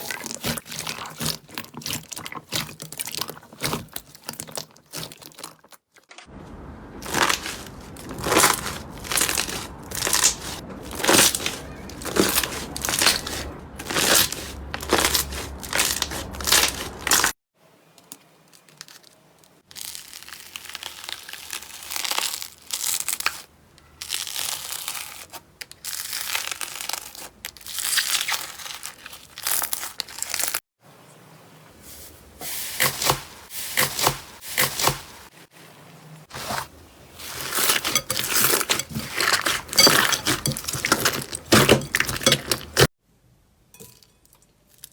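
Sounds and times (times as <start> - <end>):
slime crackling squeezed by hand: 7.0 - 17.3, 19.7 - 30.6.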